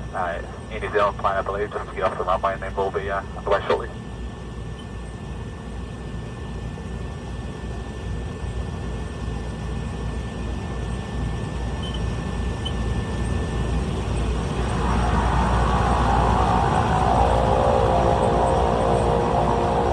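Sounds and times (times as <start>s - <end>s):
propeller plane engine idling: 13.8s - 19.9s.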